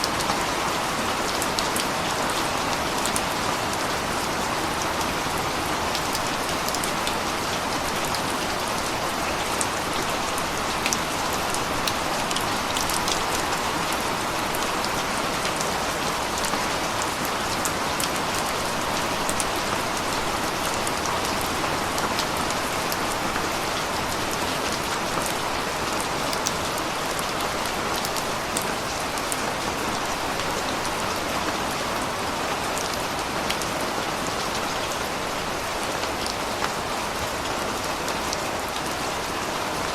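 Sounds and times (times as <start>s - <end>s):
raindrops ticking on surface: 0.0s - 31.7s
steady rain hiss: 0.0s - 39.9s.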